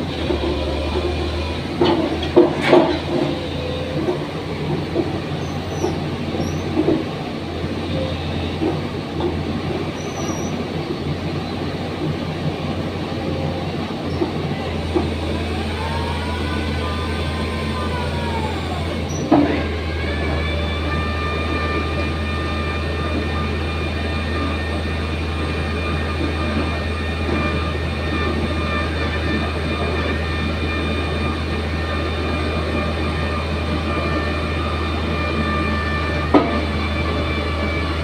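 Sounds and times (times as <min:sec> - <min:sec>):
excavator engine droning: 0:00.0 - 0:38.0
excavator whine: 0:00.0 - 0:38.0.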